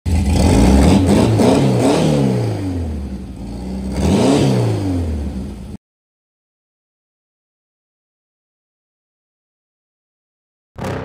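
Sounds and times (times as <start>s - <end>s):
car engine revving: 0.1s - 5.8s, 10.8s - 11.0s.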